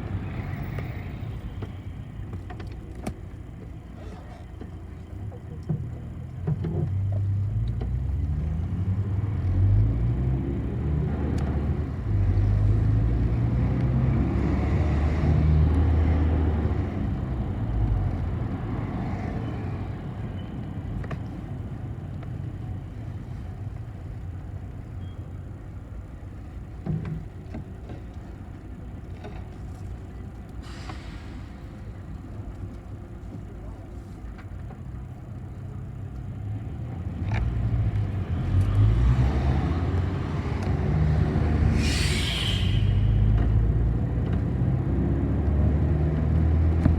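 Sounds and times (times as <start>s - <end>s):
bus engine accelerating: 3.1s - 46.9s
brief hiss: 41.6s - 43.7s.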